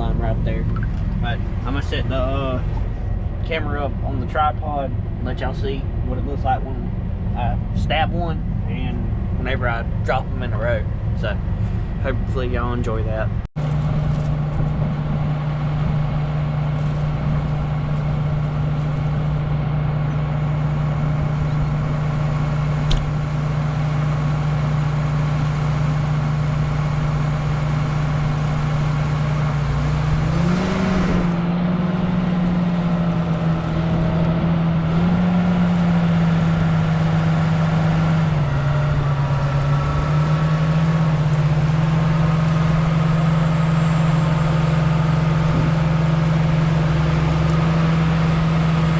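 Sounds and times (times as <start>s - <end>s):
tractor diesel engine running: 0.0s - 48.9s
sharp click: 22.9s - 23.1s.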